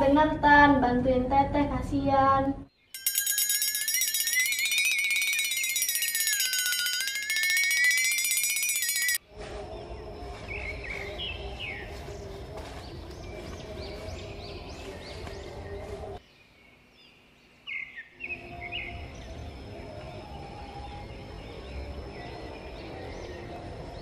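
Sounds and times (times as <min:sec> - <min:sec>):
birds chirping: 0:02.7 - 0:24.0
high electronic tone: 0:03.0 - 0:09.2.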